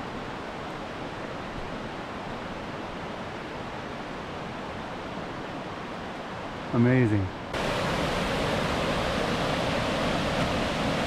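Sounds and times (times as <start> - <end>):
waterfall rushing: 7.0 - 11.0.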